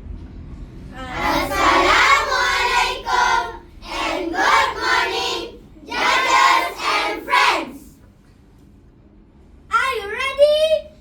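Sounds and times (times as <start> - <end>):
children speaking in unison: 1.0 - 8.0.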